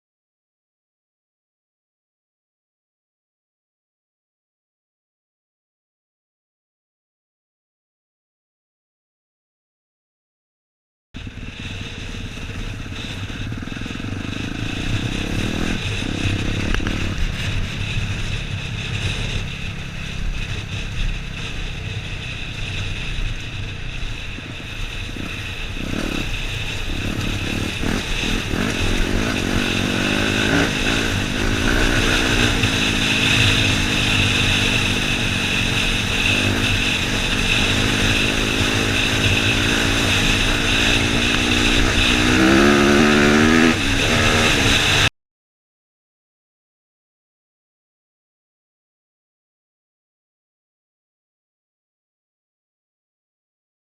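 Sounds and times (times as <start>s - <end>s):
dirt bike engine revving: 11.2s - 45.1s.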